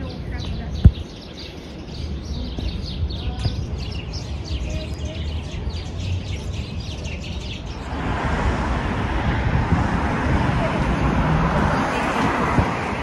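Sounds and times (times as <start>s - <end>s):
small birds chirping: 0.0s - 8.1s
low traffic rumble: 0.0s - 13.0s
approaching vehicle: 7.7s - 13.0s.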